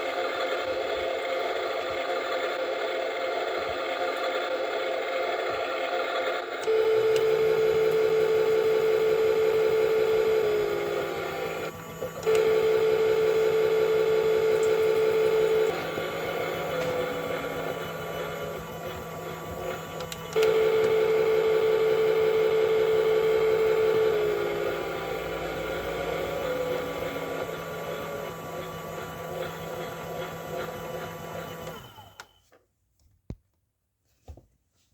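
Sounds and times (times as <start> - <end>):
toy motor whining: 6.6 - 32.4.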